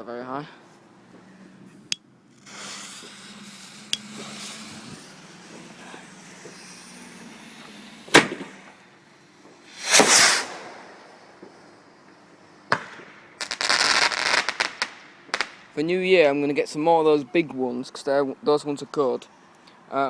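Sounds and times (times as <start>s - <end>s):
firework bangs: 2.3s - 11.8s, 12.7s - 15.8s
rushing firework burst: 2.3s - 12.0s
firework crackles: 2.3s - 15.8s.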